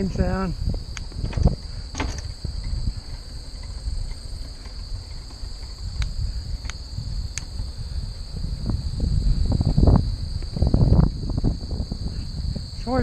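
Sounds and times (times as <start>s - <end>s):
crickets and insects chirring: 0.0s - 13.0s
sharp ticks: 0.9s - 7.7s.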